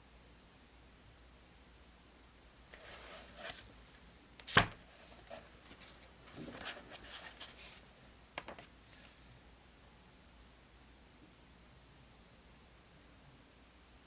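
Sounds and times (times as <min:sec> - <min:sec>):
paper rustling: 0:02.8 - 0:03.7, 0:04.4 - 0:09.2.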